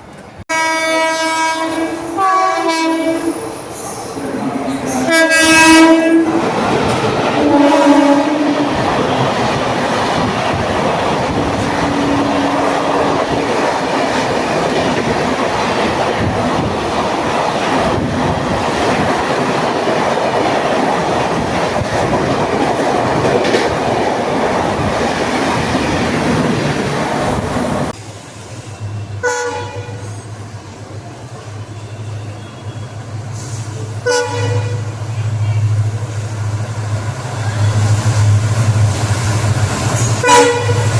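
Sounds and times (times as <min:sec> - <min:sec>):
train wheels rushing on rails: 0:00.0 - 0:40.9
train horn: 0:00.5 - 0:03.5, 0:04.9 - 0:06.4, 0:07.4 - 0:08.8, 0:11.7 - 0:13.4, 0:28.9 - 0:30.2, 0:34.0 - 0:36.0, 0:40.2 - 0:40.9.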